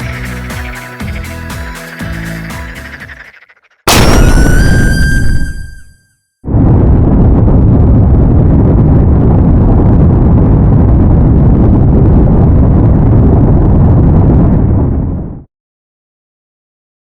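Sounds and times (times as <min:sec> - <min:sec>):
loud low rumble: 0:06.5 - 0:15.5.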